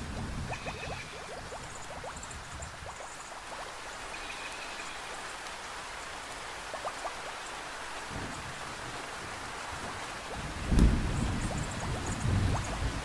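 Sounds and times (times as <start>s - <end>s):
heavy rain: 0.0s - 13.0s
low thunder rumble: 8.1s - 13.0s.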